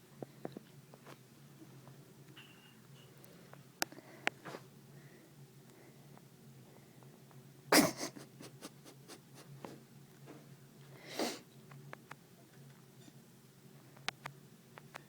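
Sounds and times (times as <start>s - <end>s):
cat sneezing: 7.7s - 9.8s.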